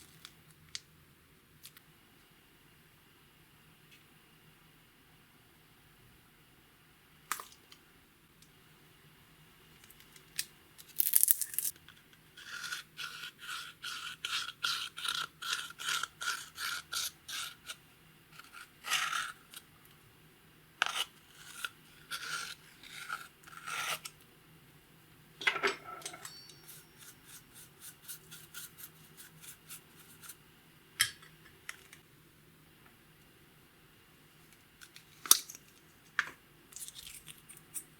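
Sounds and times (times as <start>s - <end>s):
slime scraping and rubbing: 20.8s - 24.0s.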